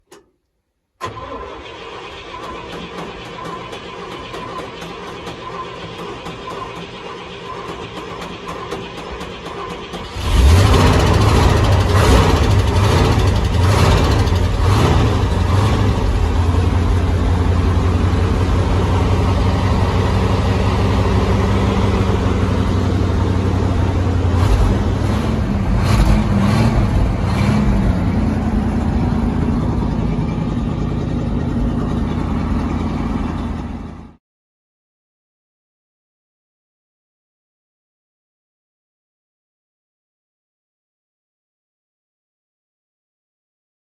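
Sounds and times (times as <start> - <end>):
truck engine revving and idling: 1.2 - 34.2.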